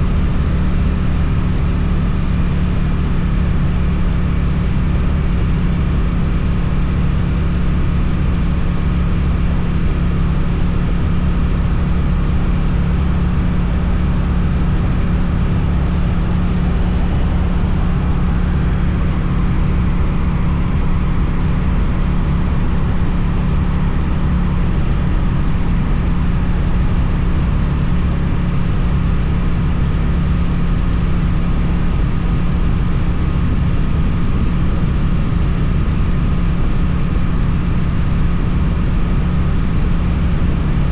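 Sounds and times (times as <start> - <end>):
motorcycle engine running steadily: 0.0 - 40.9.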